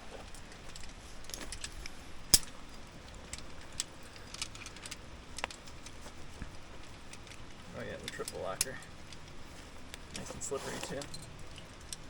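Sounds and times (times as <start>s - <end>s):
climbing hardware clinking: 6.8s - 9.3s, 10.1s - 12.0s.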